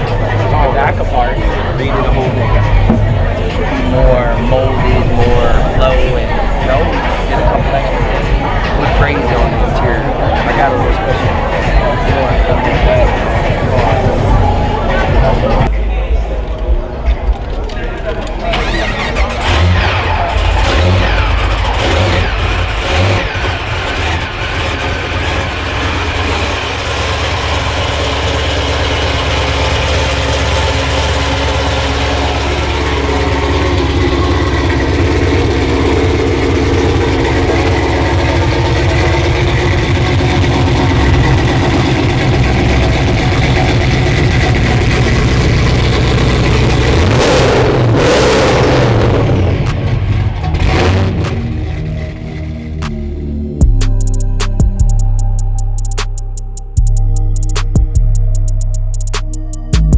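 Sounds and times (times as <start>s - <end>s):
car engine running: 0.0s - 59.9s.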